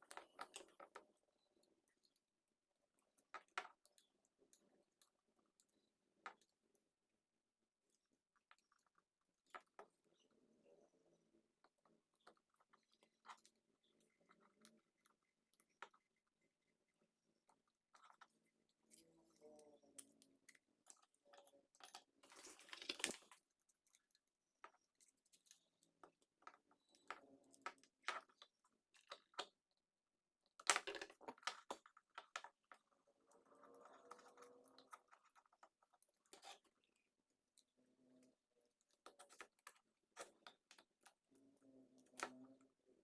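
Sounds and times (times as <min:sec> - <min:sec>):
faint clicks and taps of tools: 0:00.0 - 0:07.0
scraping of small parts: 0:17.9 - 0:29.5.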